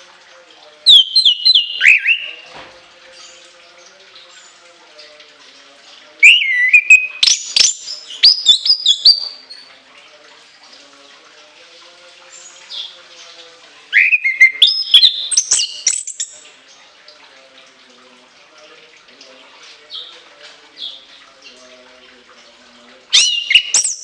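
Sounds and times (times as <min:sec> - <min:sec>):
thrush singing whistled phrases: 0:00.8 - 0:02.4, 0:06.2 - 0:09.6, 0:13.9 - 0:16.4, 0:23.1 - 0:24.0.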